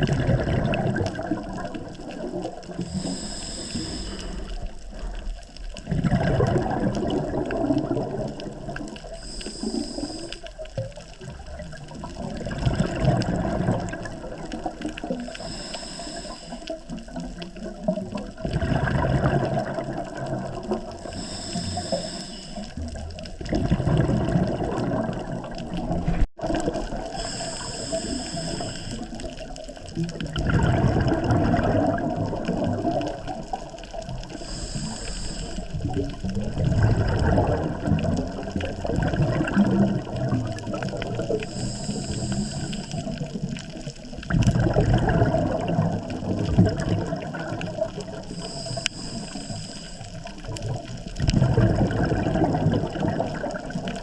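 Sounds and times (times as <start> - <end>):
exhaled bubbles gurgling: 0.0 - 54.0
regulator inhalation hiss: 2.8 - 4.7, 9.1 - 10.6, 15.3 - 16.9, 21.0 - 22.8, 27.1 - 29.2, 34.3 - 35.8, 41.4 - 43.2, 48.2 - 50.3.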